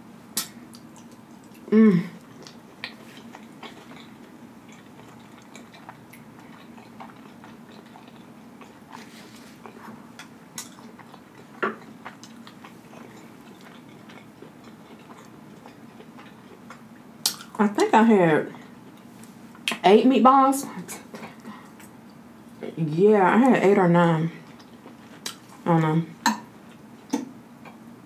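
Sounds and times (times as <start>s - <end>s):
wet mouth clicks and smacks: 0.4s - 1.6s, 16.7s - 17.6s
person chewing food: 0.4s - 17.6s, 24.4s - 25.6s.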